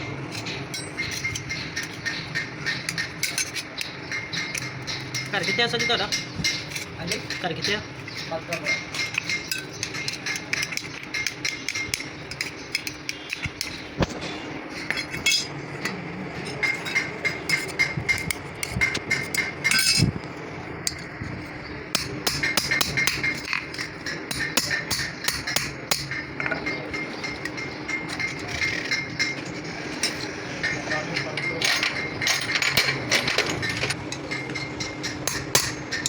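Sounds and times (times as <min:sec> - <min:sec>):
hammer tapping on metal: 0:21.9 - 0:29.4, 0:34.2 - 0:36.0.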